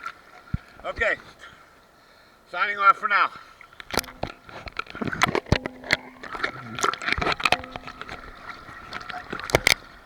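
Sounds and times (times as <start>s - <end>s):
seawater sloshing: 3.3s - 10.0s
camera handling knocks: 3.9s - 8.2s.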